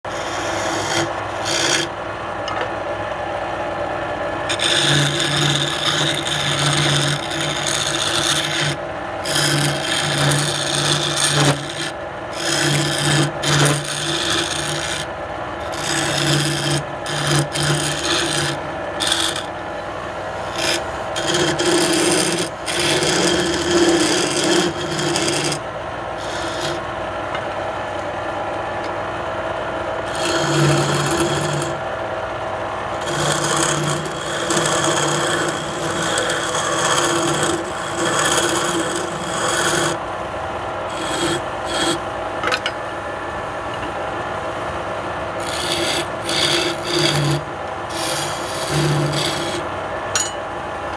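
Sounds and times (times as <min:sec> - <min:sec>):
turning tool scraping wood: 0:00.0 - 0:02.7, 0:04.5 - 0:26.9, 0:30.0 - 0:31.9, 0:32.9 - 0:40.0, 0:40.9 - 0:42.8, 0:45.4 - 0:49.7
wood lathe humming: 0:00.0 - 0:02.7, 0:04.0 - 0:27.4, 0:29.5 - 0:42.7, 0:45.3 - 0:50.2.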